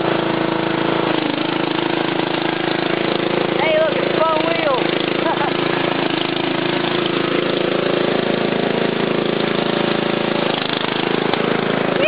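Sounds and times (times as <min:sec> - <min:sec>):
lawn tractor engine running: 0:00.0 - 0:12.0.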